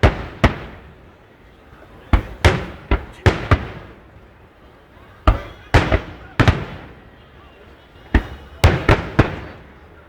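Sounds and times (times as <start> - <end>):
fireworks bursting with echo: 0.0 - 1.3, 2.0 - 4.3, 5.2 - 7.1, 8.1 - 9.9.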